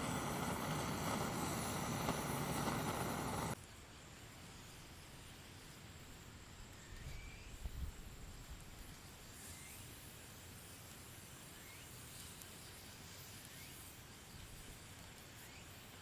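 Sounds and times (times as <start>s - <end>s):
high-pitched whine: 0.0s - 3.6s.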